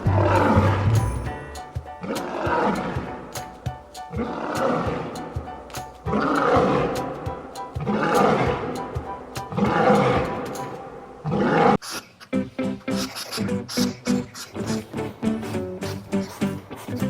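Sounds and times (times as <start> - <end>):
background music: 0.0 - 11.7, 12.3 - 17.0
large animal roaring: 2.0 - 3.1, 4.2 - 5.2, 6.1 - 7.2, 7.8 - 8.8, 9.6 - 10.4, 11.2 - 11.8.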